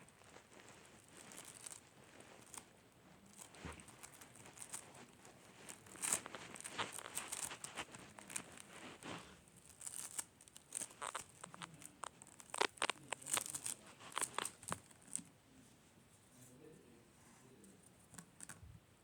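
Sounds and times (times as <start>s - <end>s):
slime crackling and popping: 0.0s - 15.2s.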